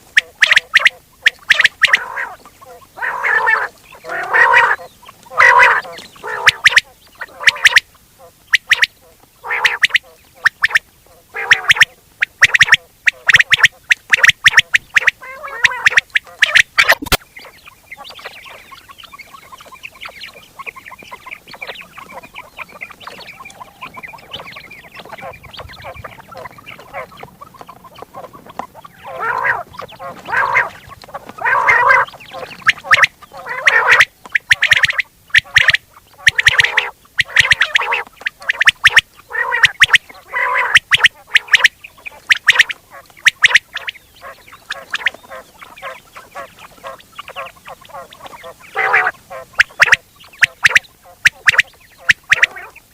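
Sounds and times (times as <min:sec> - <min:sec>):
quail calling: 0:00.0 - 0:52.9.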